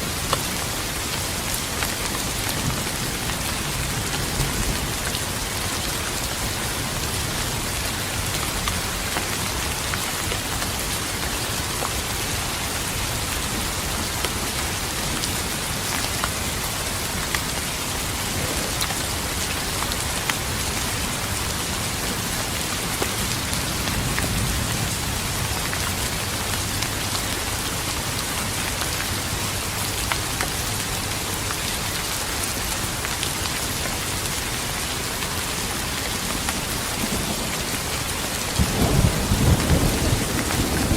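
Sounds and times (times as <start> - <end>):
rain on a hard surface: 0.0 - 40.9
thunder rumble: 38.6 - 40.9.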